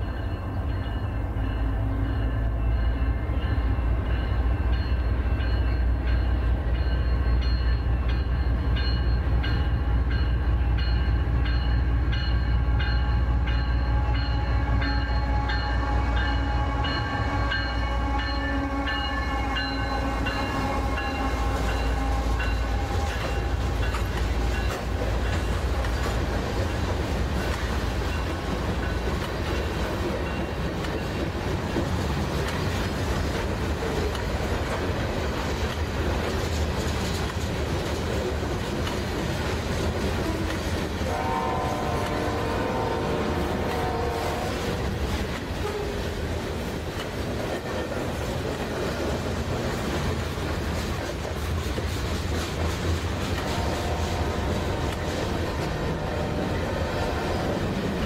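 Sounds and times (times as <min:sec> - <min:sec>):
train wheels rolling on rails: 0:00.0 - 0:58.0
train horn: 0:12.5 - 0:25.1, 0:40.2 - 0:46.2, 0:53.2 - 0:58.0.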